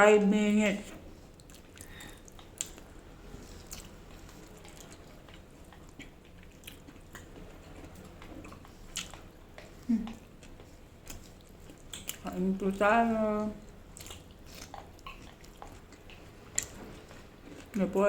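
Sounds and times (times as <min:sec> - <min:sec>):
person chewing food: 0:00.9 - 0:17.8
wet mouth clicks and smacks: 0:01.4 - 0:02.9, 0:08.5 - 0:12.3.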